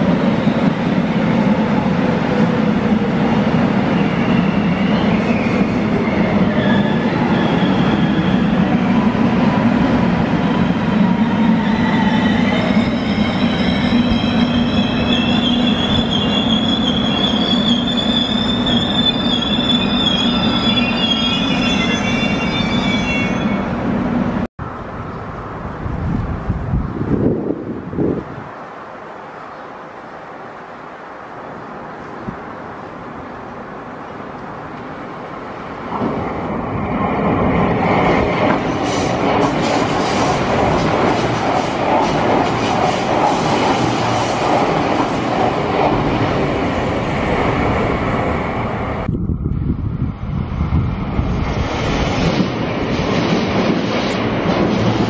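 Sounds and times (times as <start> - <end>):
train wavering squeal: 3.8 - 9.2, 10.4 - 23.8
train low rumble: 22.0 - 28.6, 31.4 - 55.0.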